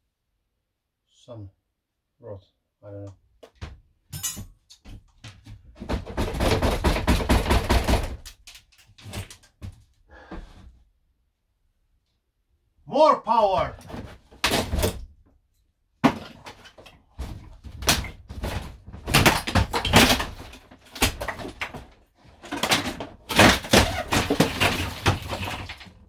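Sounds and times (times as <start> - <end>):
loud cracks bangs and rattles: 5.9 - 8.5, 17.8 - 26.0
wooden panelling being ripped out: 13.8 - 15.1, 16.0 - 26.0.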